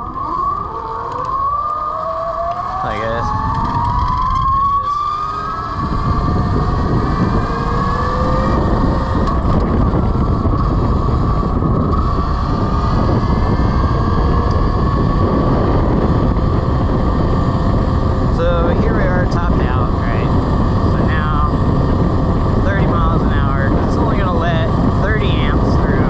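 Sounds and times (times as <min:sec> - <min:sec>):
electric motorcycle whining: 0:00.0 - 0:26.0
wind rumble on microphone: 0:00.0 - 0:26.0.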